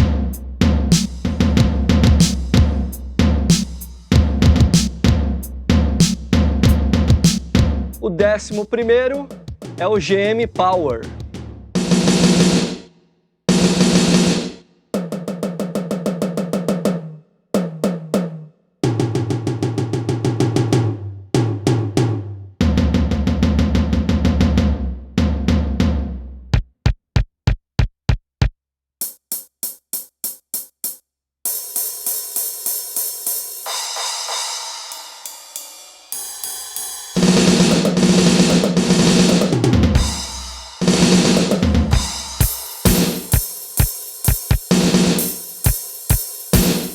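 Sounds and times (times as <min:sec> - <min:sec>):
bass drum: 0:00.0 - 0:12.6, 0:21.4 - 0:28.6, 0:39.3 - 0:46.9
snare and tom fills: 0:00.0 - 0:12.9, 0:13.5 - 0:30.9, 0:37.1 - 0:46.9
cymbal crashes: 0:40.0 - 0:46.9.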